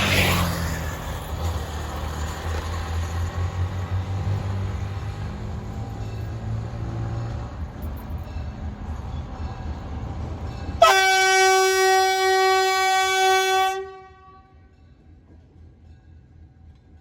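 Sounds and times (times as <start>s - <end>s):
freight train rumble: 0.0s - 17.0s
locomotive horn blast: 10.8s - 14.7s.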